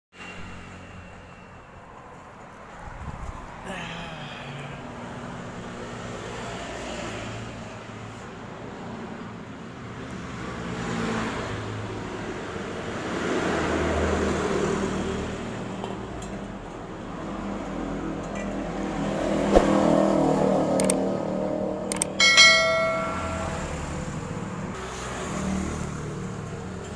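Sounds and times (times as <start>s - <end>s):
car engine idling and revving: 9.2s - 26.9s.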